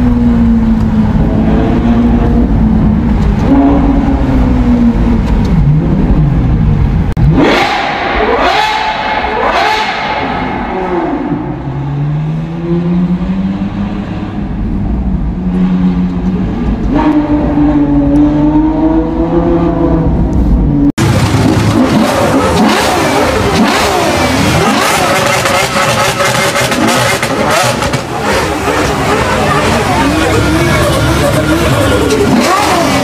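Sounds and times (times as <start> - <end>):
supercar engines revving hard: 0.0 - 20.3, 21.0 - 33.0
onlookers' voices: 27.0 - 33.0.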